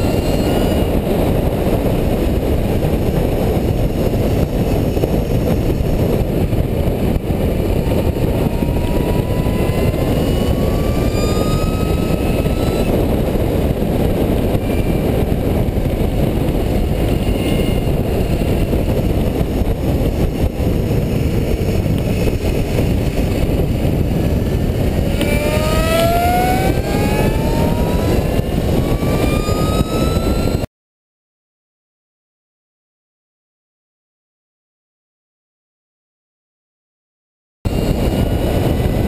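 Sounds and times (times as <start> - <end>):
wind rush over camera: 0.0 - 30.7, 37.7 - 39.0
electric motors whining: 7.7 - 13.2, 24.7 - 30.7.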